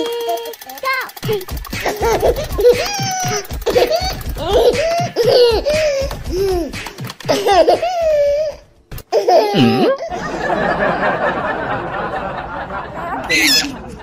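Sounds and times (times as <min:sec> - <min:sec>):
person laughing: 0:01.8 - 0:08.4, 0:09.2 - 0:11.1, 0:12.9 - 0:14.0.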